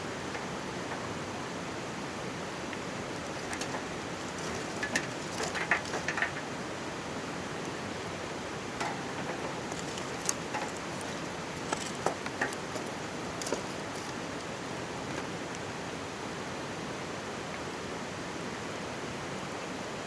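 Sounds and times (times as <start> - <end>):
stream rushing: 0.0 - 20.0
campfire crackling and popping: 3.0 - 6.8, 8.8 - 14.8.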